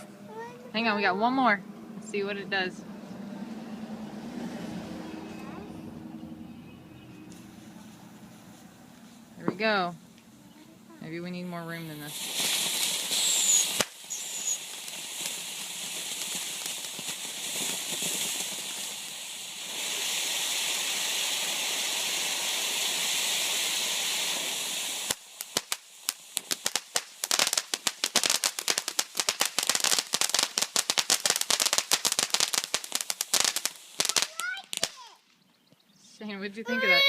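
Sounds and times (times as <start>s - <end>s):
firework hissing: 0.0s - 2.3s, 3.4s - 9.8s, 10.5s - 35.2s
short high firework whistles: 4.9s - 7.8s, 11.8s - 27.5s
rapid crackling pops: 12.0s - 19.1s, 25.0s - 35.4s.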